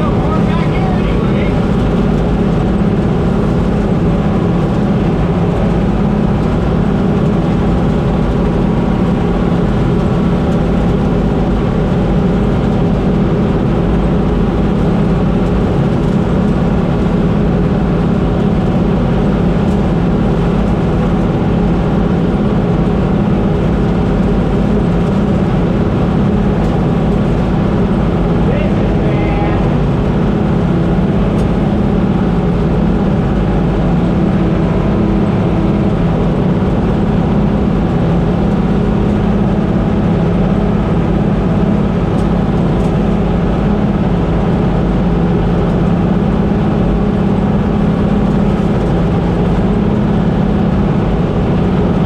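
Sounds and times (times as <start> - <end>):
combine harvester droning: 0.0 - 52.0.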